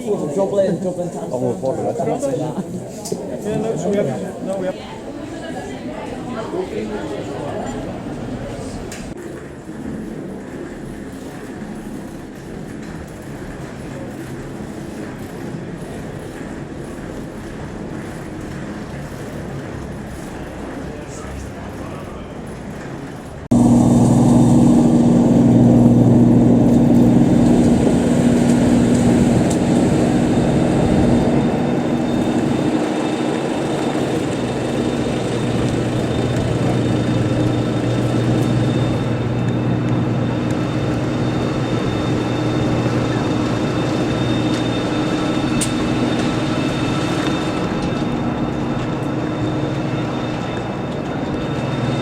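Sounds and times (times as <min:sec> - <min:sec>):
parked airliner mechanical drone: 0:06.9 - 0:52.0
low hum tones: 0:23.5 - 0:52.0.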